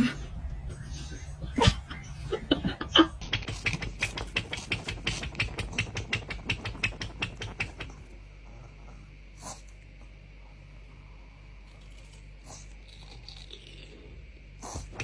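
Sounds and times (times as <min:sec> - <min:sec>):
rapid sharp clicks: 0:03.2 - 0:08.1.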